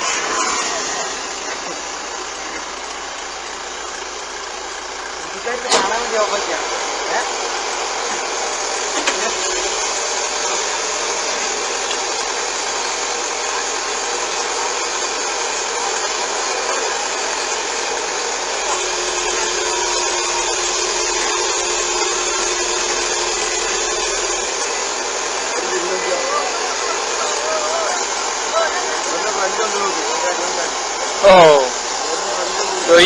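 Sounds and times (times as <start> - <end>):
rushing hiss of air: 0.0 - 2.0.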